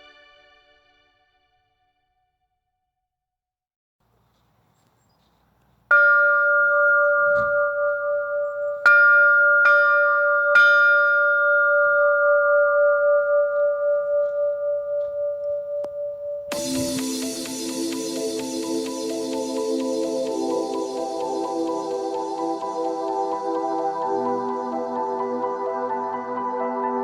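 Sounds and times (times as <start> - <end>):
bell ringing: 5.9 - 17.9.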